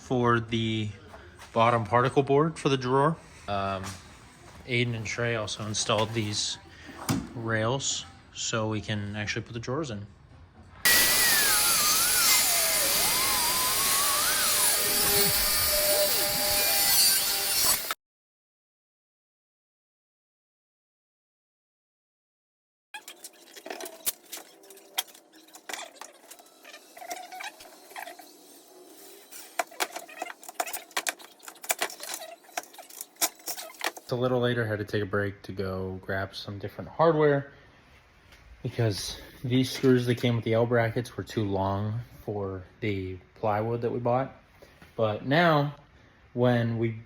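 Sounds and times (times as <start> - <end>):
electric power tool running: 10.9 - 18.0.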